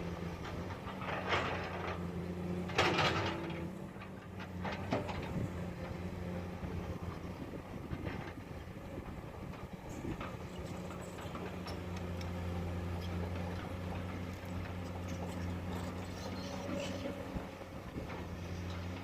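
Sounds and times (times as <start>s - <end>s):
diesel engine running: 0.0s - 19.0s
metallic clanks and scraping: 0.4s - 5.4s.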